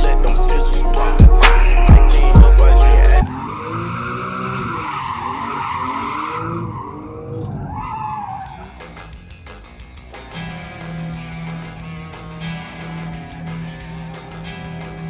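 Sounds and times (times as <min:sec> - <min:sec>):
music: 0:00.0 - 0:03.2, 0:08.6 - 0:15.0
car engine revving: 0:00.0 - 0:15.0
tyres screeching: 0:02.6 - 0:15.0.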